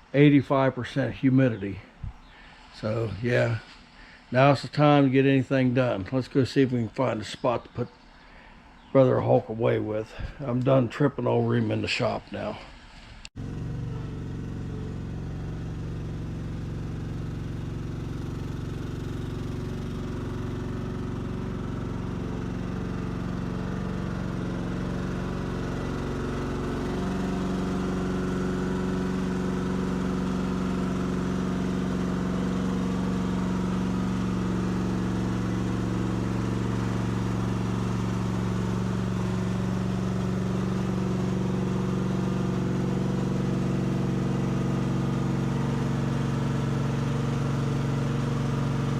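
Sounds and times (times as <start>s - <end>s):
gasoline engine running: 13.3s - 48.9s.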